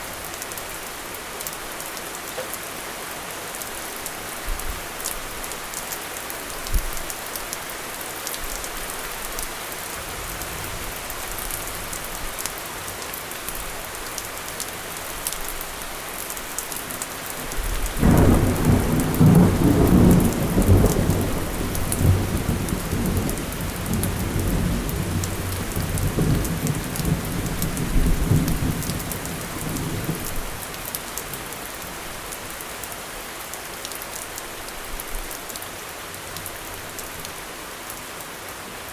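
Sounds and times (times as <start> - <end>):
steady rain falling: 0.0 - 38.9
raindrops pattering close by: 0.1 - 38.3
thunder rumbling: 18.0 - 30.2.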